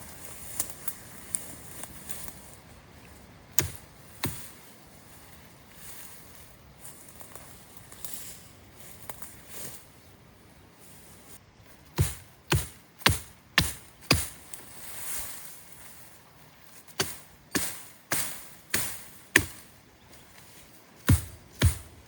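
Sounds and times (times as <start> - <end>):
axe chopping wood: 3.6 - 4.5, 11.9 - 14.4, 17.0 - 19.7, 21.0 - 22.0.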